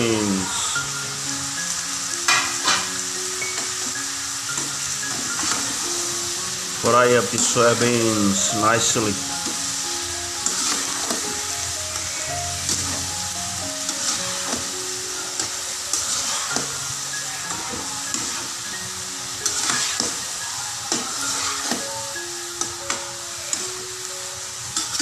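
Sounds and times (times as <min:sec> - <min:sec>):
background music: 0:00.0 - 0:25.0
food sizzling in a wok: 0:00.0 - 0:25.0
metal spatula scraping a pan: 0:02.3 - 0:03.0, 0:10.4 - 0:18.6, 0:19.4 - 0:22.2.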